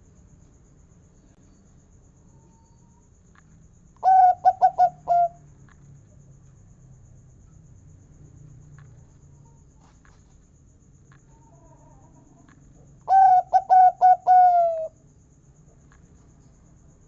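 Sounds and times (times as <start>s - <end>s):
dove cooing: 4.0s - 5.4s, 11.3s - 15.0s.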